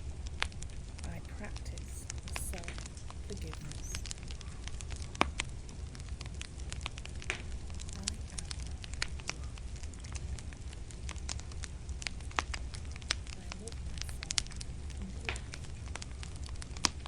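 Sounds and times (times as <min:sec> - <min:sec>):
fire crackling and popping: 0:00.0 - 0:17.0
low steady rumble: 0:00.0 - 0:17.0.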